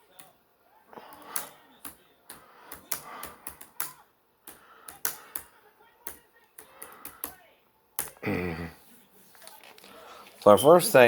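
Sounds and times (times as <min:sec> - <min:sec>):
typing on computer keyboard: 0:02.6 - 0:07.4.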